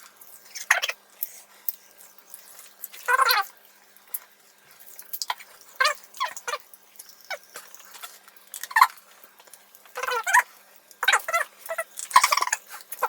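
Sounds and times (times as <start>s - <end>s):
squeaky vocal yelps and squeals: 3.1s - 3.5s, 5.8s - 6.6s, 10.0s - 10.4s.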